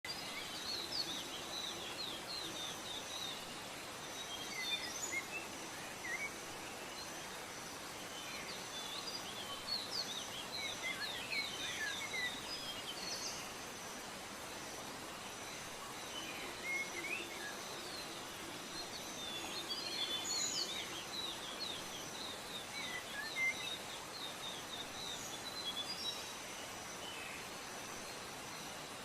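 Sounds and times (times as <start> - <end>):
steady background hiss: 0.1 - 29.0.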